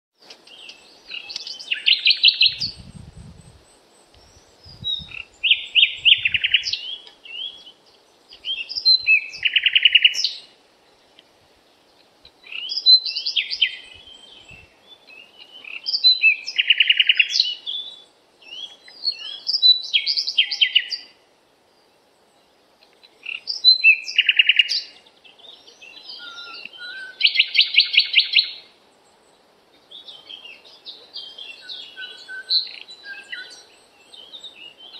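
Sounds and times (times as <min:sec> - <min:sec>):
songbird singing chirps and trills: 0:00.2 - 0:34.9.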